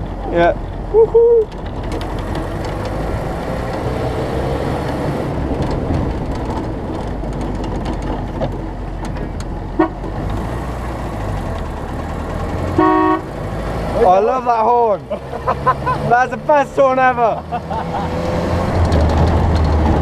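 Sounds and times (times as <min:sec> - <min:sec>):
car engine running: 0:00.0 - 0:20.0
short horn toot: 0:12.8 - 0:13.3.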